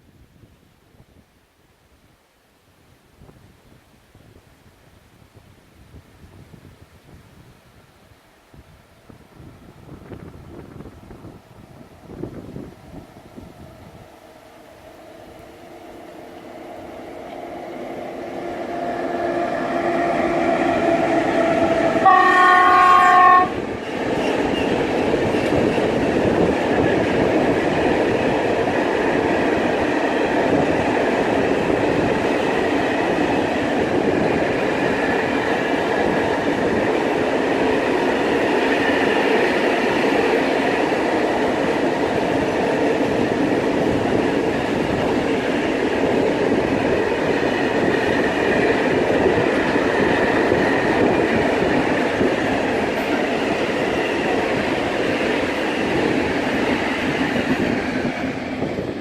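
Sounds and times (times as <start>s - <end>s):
freight train passing: 8.7s - 59.0s
train horn: 14.2s - 23.6s.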